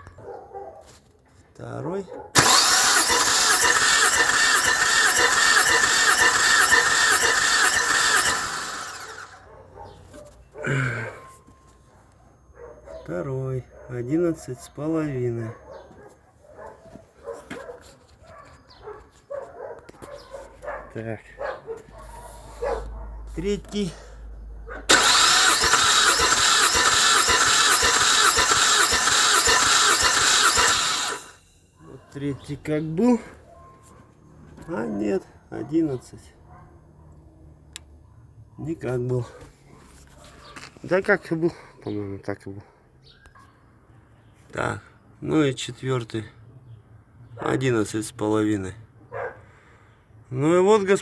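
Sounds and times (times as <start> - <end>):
car engine cranking on starter: 2.4 - 9.4, 24.9 - 31.4.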